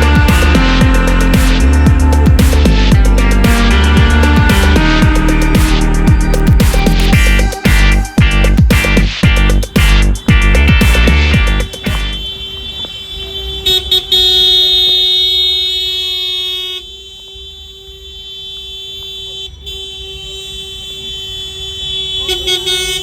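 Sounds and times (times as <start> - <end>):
low engine rumble: 0.0 - 12.2
vehicle horn long steady tone: 11.3 - 23.0.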